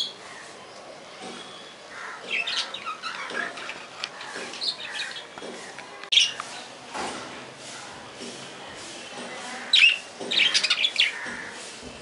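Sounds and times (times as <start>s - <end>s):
budgerigars chirping and squawking: 2.0s - 5.3s, 9.6s - 11.6s.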